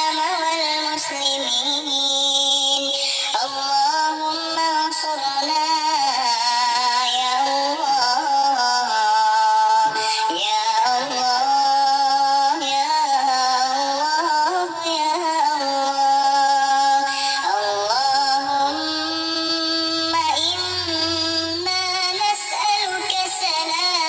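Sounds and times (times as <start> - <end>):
person chanting melody: 3.4 - 24.0.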